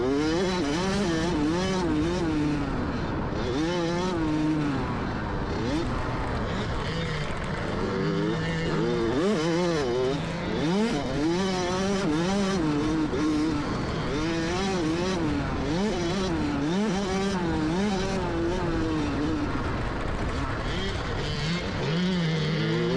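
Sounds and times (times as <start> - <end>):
dirt bike engine revving: 0.0 - 22.9.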